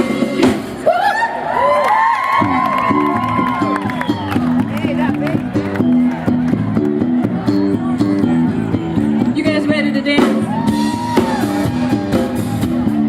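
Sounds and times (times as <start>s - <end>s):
live band playing: 0.0s - 1.0s, 2.4s - 13.0s.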